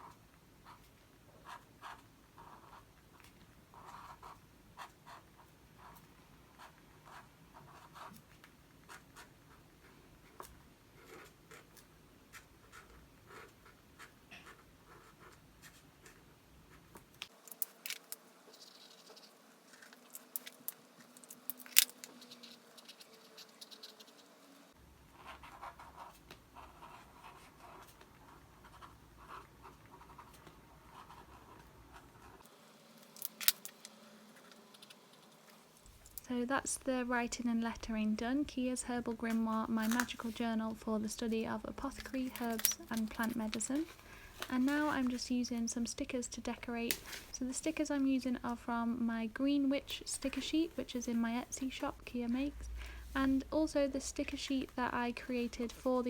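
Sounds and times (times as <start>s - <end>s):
pen scratching on paper: 0.0s - 17.0s, 25.1s - 32.4s.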